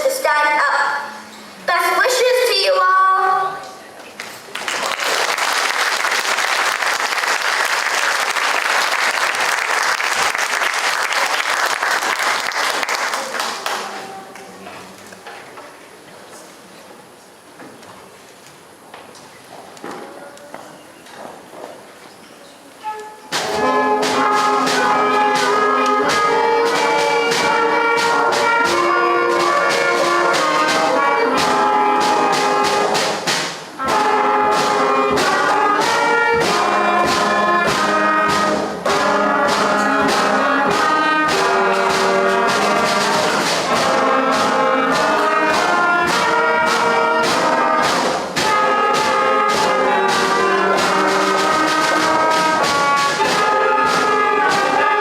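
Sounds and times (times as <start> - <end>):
concert band playing: 22.8 - 55.0.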